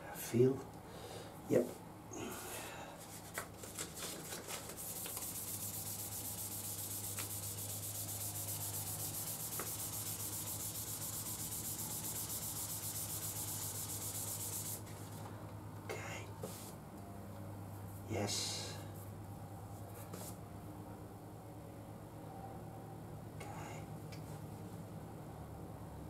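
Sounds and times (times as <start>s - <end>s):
sandpaper wet-sanding metal: 4.5s - 14.8s.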